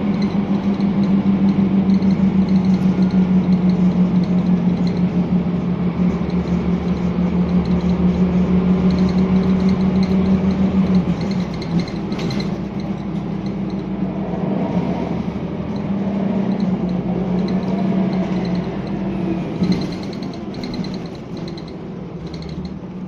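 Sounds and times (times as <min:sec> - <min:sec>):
rapid high ticking rattling: 0:00.0 - 0:14.2, 0:15.5 - 0:23.0
diesel bus engine running: 0:00.0 - 0:23.0.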